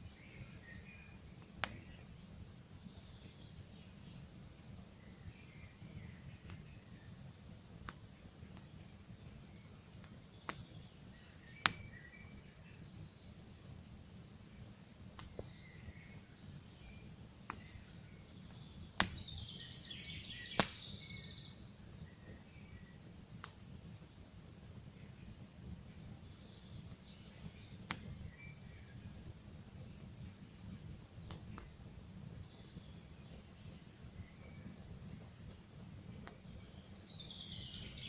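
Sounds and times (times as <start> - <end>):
low rumble of burning: 0.0 - 38.0
small birds chirping: 0.0 - 38.0
campfire crackling and popping: 0.3 - 22.4, 23.0 - 37.0.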